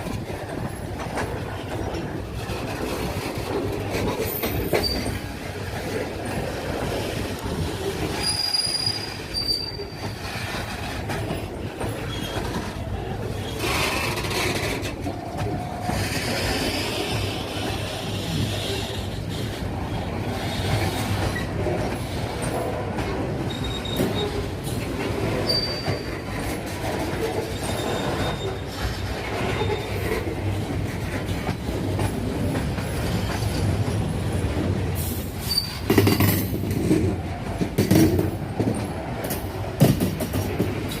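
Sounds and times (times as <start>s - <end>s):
train wheels rumbling on rails: 0.0s - 41.0s
high wheel squeals: 4.6s - 5.3s, 8.1s - 10.2s, 23.5s - 24.5s, 25.4s - 26.3s, 27.5s - 28.9s, 35.4s - 35.9s
loud train knocks: 35.7s - 41.0s.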